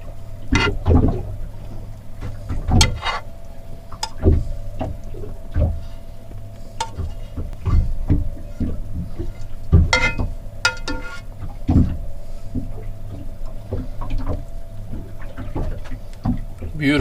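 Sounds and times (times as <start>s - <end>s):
steady low hum: 0.0s - 17.0s
utensils knocking on plates: 9.9s - 11.2s.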